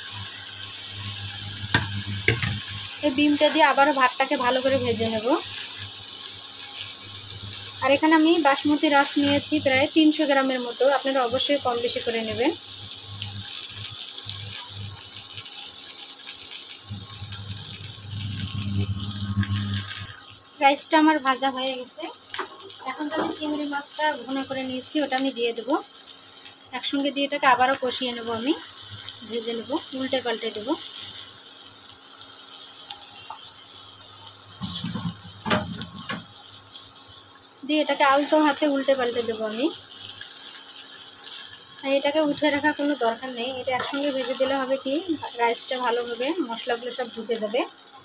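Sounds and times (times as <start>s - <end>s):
rice sizzling in a pan: 0.0s - 48.0s
low hum: 16.9s - 20.2s
spatula stirring rice: 43.5s - 44.9s.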